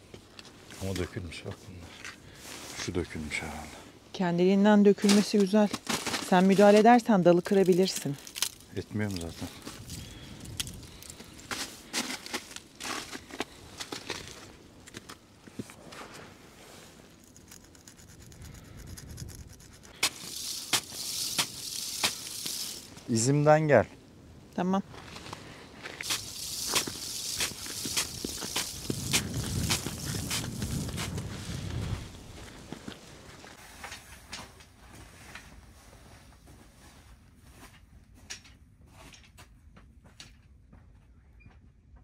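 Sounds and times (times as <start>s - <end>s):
footsteps crunching through snow: 7.9s - 17.2s, 24.9s - 34.2s.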